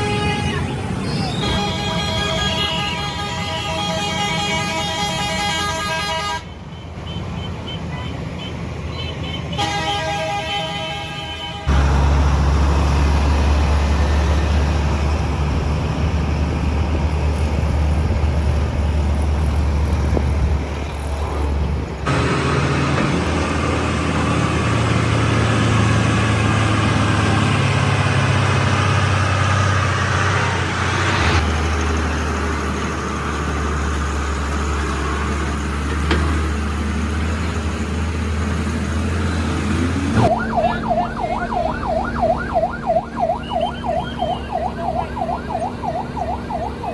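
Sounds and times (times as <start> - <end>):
heavy truck engines running: 0.0 - 46.9
road noise: 0.0 - 46.9
wailing siren: 40.2 - 46.9.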